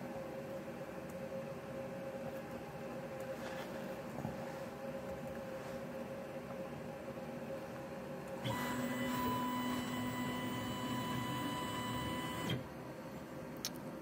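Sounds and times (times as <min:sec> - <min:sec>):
low electrical hum: 0:00.0 - 0:14.0
stepper motor whine: 0:08.4 - 0:12.6.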